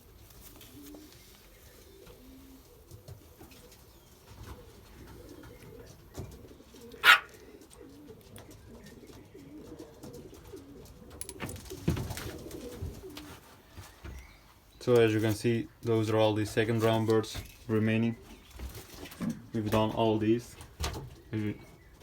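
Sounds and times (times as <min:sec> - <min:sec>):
pigeons cooing softly: 0:00.0 - 0:22.0.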